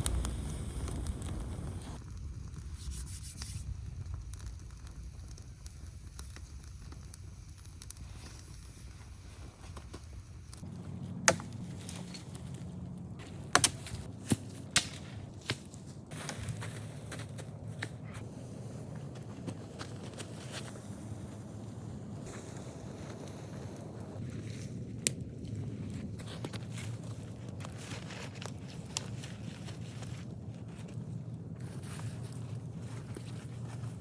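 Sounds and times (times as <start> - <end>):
low rumble: 0.0 - 2.9, 10.3 - 34.0
wood cracking: 10.6 - 18.2.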